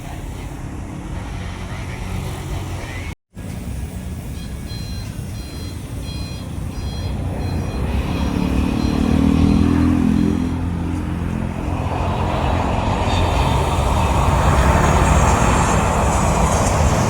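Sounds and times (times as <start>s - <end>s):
low engine rumble: 0.0s - 17.0s
short high beeps: 4.3s - 10.7s
deeper rumble: 5.9s - 17.0s.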